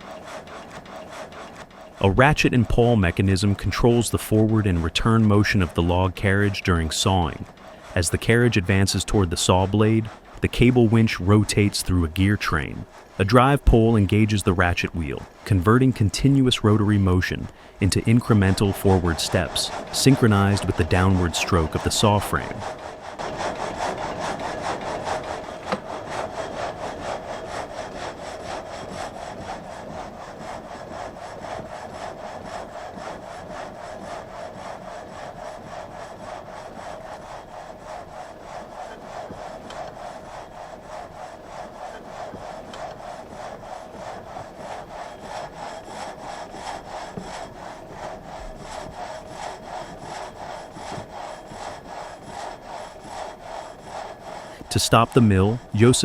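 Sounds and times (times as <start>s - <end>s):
frame saw blade rasping: 0.0s - 56.0s.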